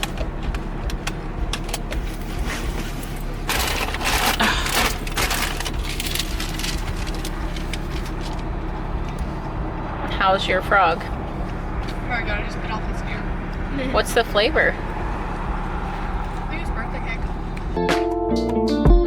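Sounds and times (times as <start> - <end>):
car cabin hum: 0.0 - 17.8
crackling clicks: 0.0 - 17.8
packaging rustling: 2.6 - 8.4.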